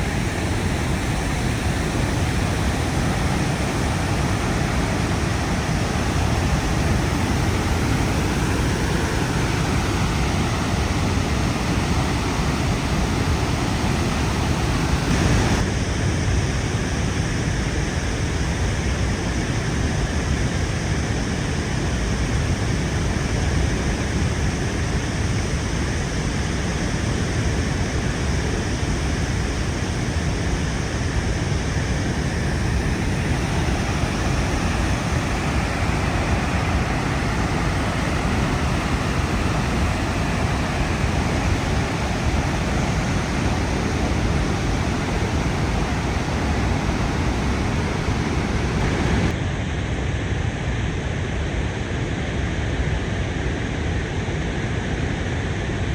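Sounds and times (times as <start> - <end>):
waterfall roaring: 0.0 - 15.6, 31.8 - 49.3.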